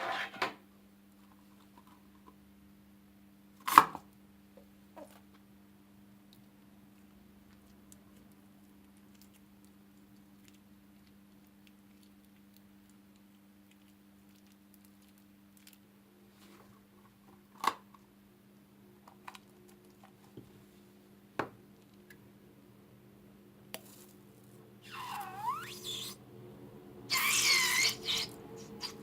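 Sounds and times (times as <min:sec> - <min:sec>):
slime squeezed by hand: 0:24.8 - 0:26.2, 0:27.1 - 0:29.0.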